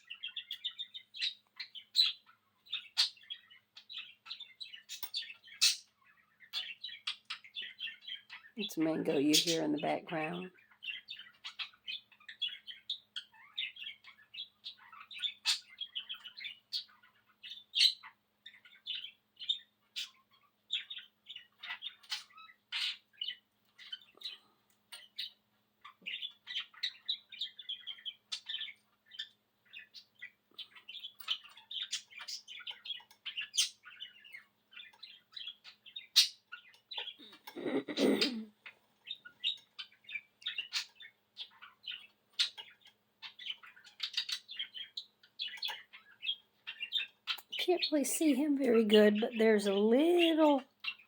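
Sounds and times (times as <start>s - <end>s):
budgie chattering and warbling: 37.0s - 38.5s.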